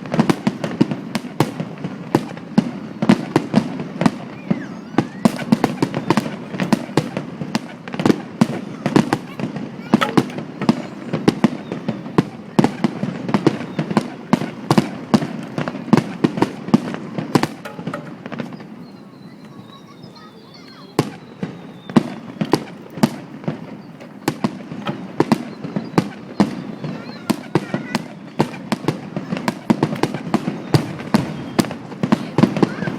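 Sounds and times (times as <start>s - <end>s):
fireworks bangs and cracks: 0.0s - 32.9s.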